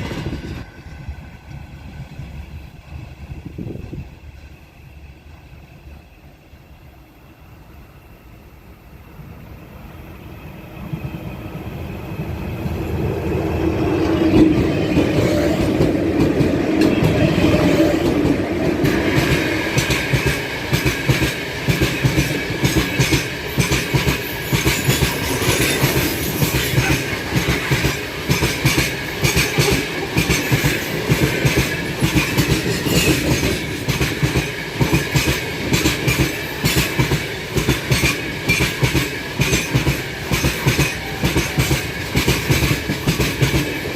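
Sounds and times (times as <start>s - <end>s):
electric locomotive rumble and hum: 0.0s - 43.9s
wagons clickety-clack over rail joints: 14.0s - 43.9s.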